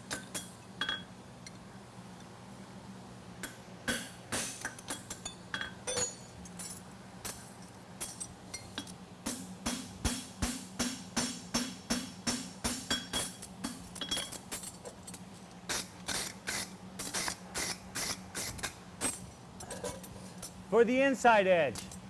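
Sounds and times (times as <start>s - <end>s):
hammer striking horseshoe on anvil: 8.0s - 14.3s.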